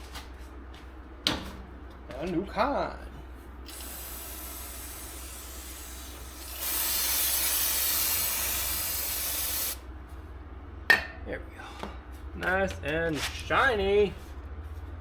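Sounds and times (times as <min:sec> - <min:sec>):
aerosol can spraying hiss: 0:03.7 - 0:09.8.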